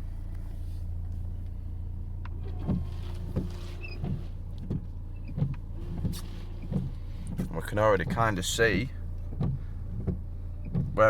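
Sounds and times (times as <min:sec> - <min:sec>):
wiper blades thudding: 0:02.2 - 0:11.0.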